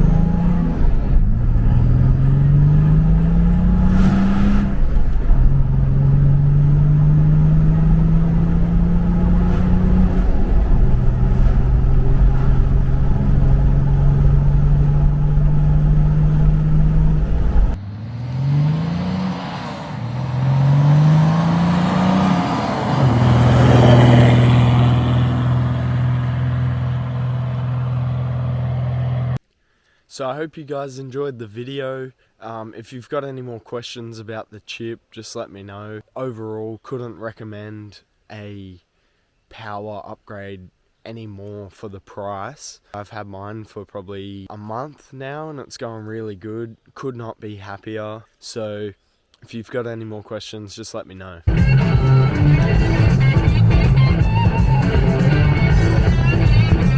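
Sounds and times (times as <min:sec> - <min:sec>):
diesel engine accelerating: 0:00.0 - 0:29.4, 0:51.5 - 0:56.9.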